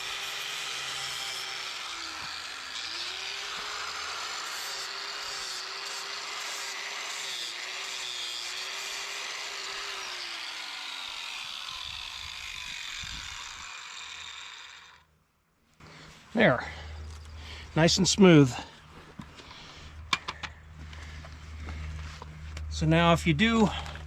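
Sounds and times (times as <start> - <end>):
angle grinder grinding steel: 0.0 - 15.1.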